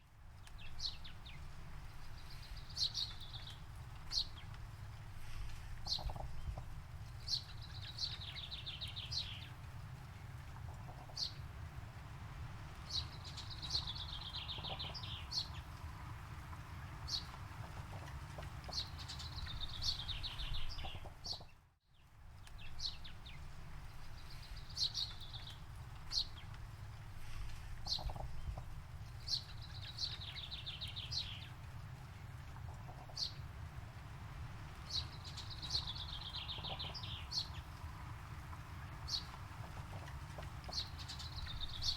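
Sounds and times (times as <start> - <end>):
songbird singing: 0.0 - 41.9
steady low rumble: 22.1 - 41.9.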